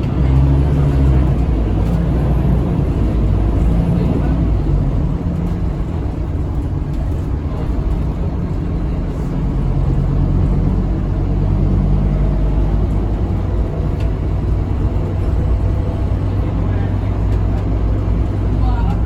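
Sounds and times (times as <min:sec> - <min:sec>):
bus diesel engine drone: 0:00.0 - 0:19.0
road noise: 0:00.0 - 0:19.0.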